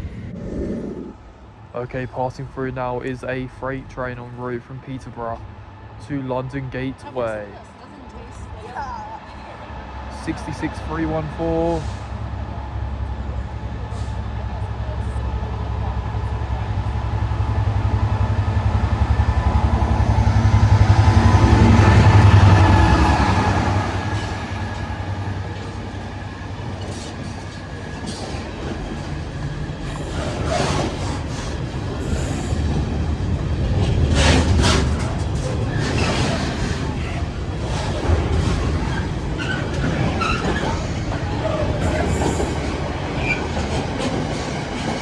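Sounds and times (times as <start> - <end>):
diesel locomotive engine rumble: 0.0 - 45.0
train wagons wheel clatter: 18.2 - 45.0.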